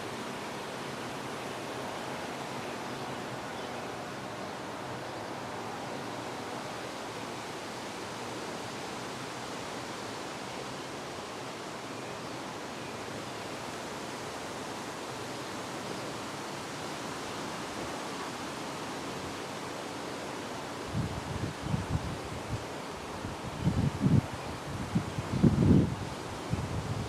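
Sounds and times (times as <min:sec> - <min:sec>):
wind blowing: 0:20.9 - 0:27.0.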